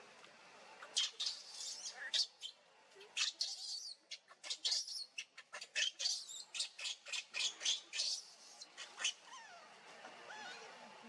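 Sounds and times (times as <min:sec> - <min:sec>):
monkeys squeaking and squealing: 0:00.8 - 0:02.5, 0:03.2 - 0:09.7.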